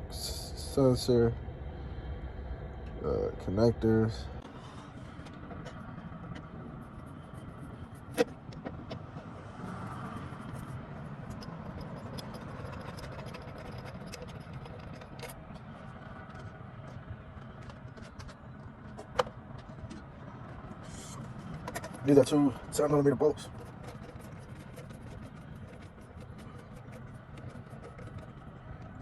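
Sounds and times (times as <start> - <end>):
steady low rumble: 0.0 - 29.0
tools clicking and knocking: 10.4 - 15.7, 21.4 - 22.1.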